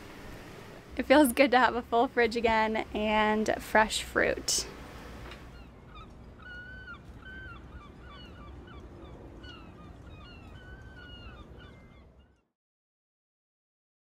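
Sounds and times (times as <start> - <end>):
low outdoor rumble: 0.0 - 11.7
birds calling: 3.7 - 12.4.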